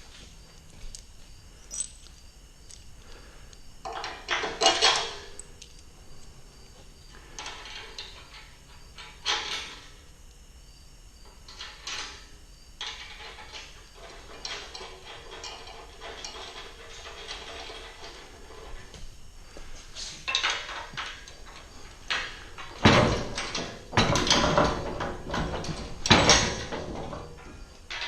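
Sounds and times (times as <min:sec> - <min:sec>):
metal parts clanking: 0:01.7 - 0:02.1, 0:03.8 - 0:05.8, 0:07.3 - 0:10.0, 0:11.5 - 0:18.9, 0:20.2 - 0:28.0.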